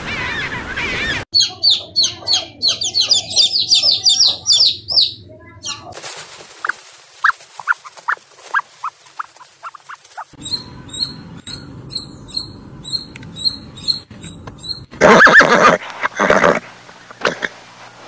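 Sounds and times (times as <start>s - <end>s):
squirrel squeaky calls: 0.2s - 6.0s, 6.6s - 15.5s
horse neighing: 15.0s - 16.6s, 17.2s - 17.6s.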